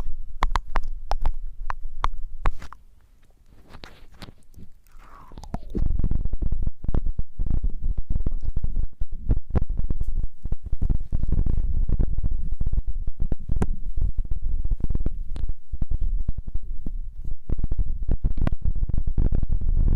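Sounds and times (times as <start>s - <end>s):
rubbing against microphone: 2.4s - 6.0s, 7.4s - 18.3s.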